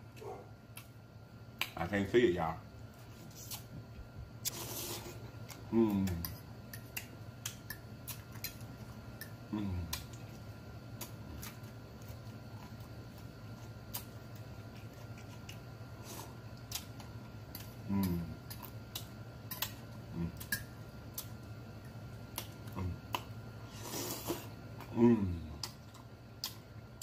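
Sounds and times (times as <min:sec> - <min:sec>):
chewing and lip-smacking: 0:05.4 - 0:23.4, 0:25.6 - 0:27.0
person humming in enjoyment: 0:05.7 - 0:06.2, 0:09.5 - 0:10.0, 0:17.9 - 0:18.4, 0:24.9 - 0:25.6.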